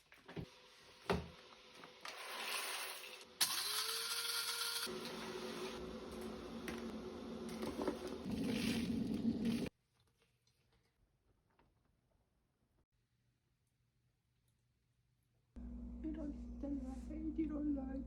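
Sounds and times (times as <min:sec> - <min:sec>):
small electric motor whirring: 0:02.2 - 0:05.8.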